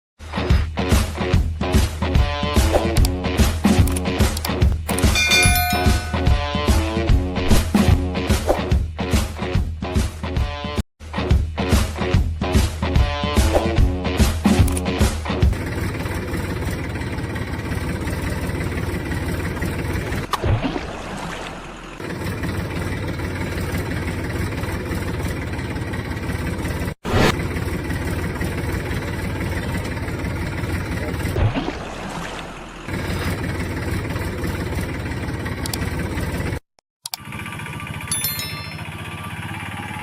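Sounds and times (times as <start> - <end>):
engine running: 14.5 - 40.0.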